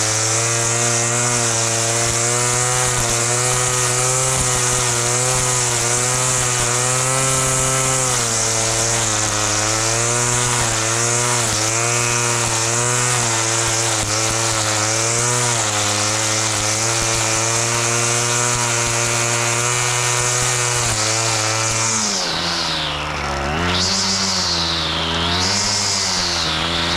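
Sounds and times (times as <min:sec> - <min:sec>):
lawn mower engine running: 0:00.0 - 0:26.9.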